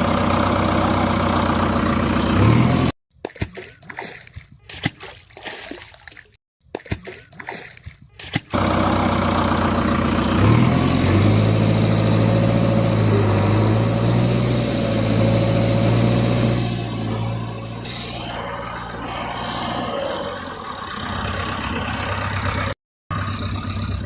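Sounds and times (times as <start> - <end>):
heavy vehicle engine running: 0.0 - 3.0, 8.5 - 24.0
water splashing: 3.1 - 8.6.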